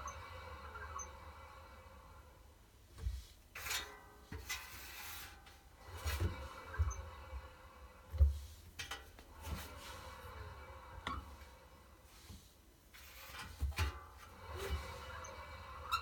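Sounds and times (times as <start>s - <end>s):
washer drum squeaking: 0.0s - 1.4s, 3.6s - 11.6s, 13.0s - 16.0s.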